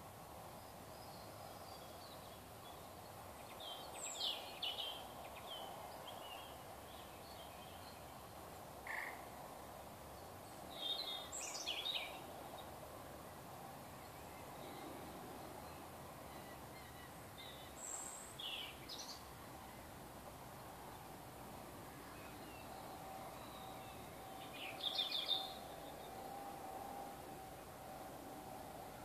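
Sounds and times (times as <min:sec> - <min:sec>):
outdoor background hum: 0:00.0 - 0:29.0
birds chirping: 0:21.9 - 0:26.2.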